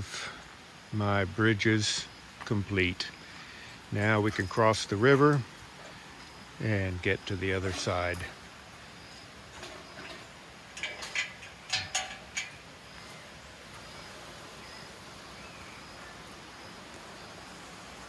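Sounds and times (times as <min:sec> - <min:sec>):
rainforest hiss: 0:00.0 - 0:18.0.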